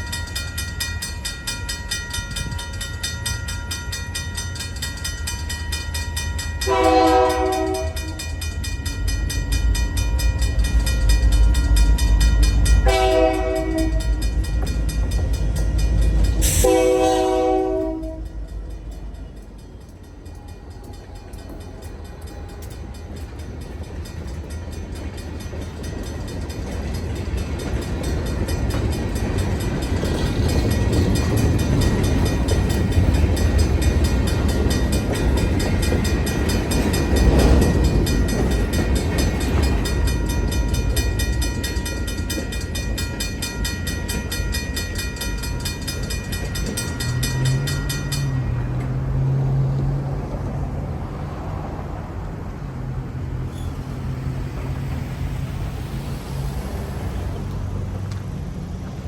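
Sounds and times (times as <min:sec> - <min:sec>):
freight train rumble and rail noise: 0:00.0 - 0:59.0
locomotive horn blast: 0:06.6 - 0:08.4, 0:12.8 - 0:14.3, 0:16.4 - 0:18.5.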